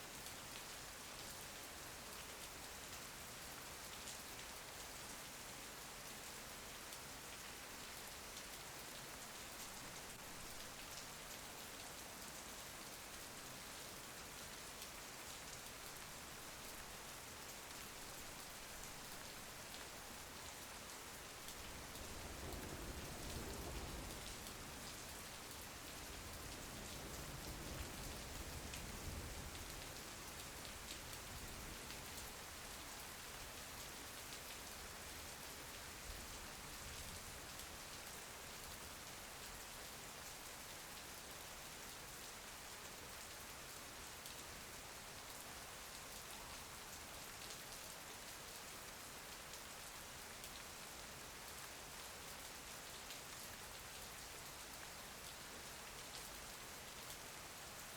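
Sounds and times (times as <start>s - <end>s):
rain pattering on a window: 0.0s - 57.9s
low rumble of thunder: 21.6s - 29.7s.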